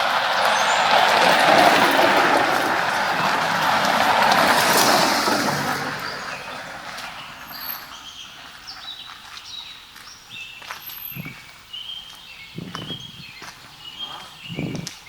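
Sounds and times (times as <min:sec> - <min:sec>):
loud rushing noise: 0:00.0 - 0:08.0
small birds chirping: 0:02.5 - 0:15.0.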